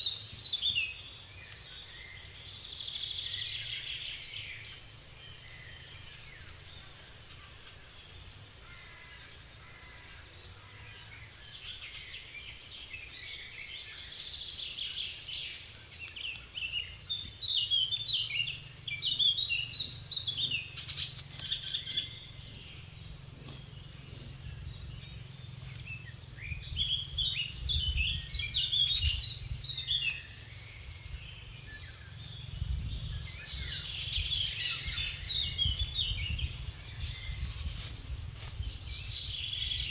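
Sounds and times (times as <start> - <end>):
birds chirping: 0.0 - 39.9
steady low rumble: 17.2 - 39.5.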